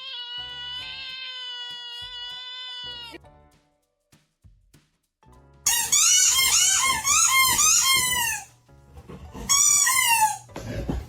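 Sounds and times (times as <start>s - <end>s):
cat meowing: 0.0s - 3.2s.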